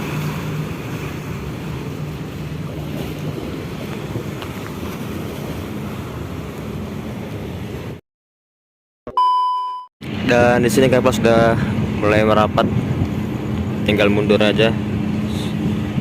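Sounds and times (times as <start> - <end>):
sea waves washing: 0.0 - 8.0
wind on microphone: 10.0 - 16.0.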